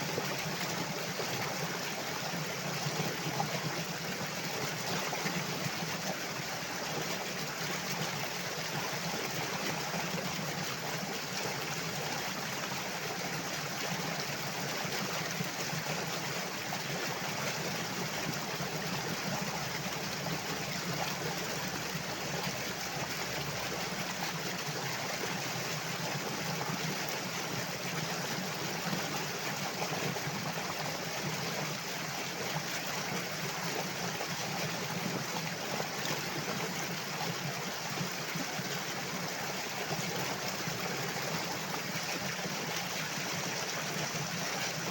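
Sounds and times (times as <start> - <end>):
water flowing: 16.0 - 44.9.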